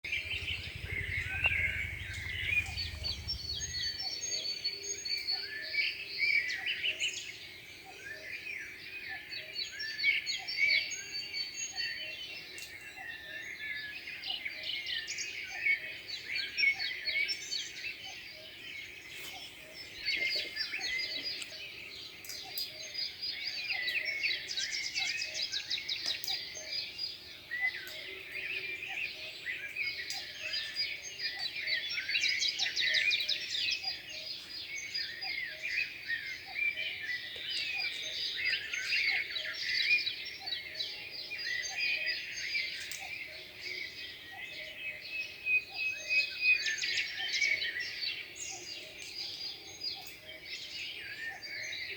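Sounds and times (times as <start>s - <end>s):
low rumble: 0.0s - 4.2s
birds singing and chirping: 0.0s - 51.9s.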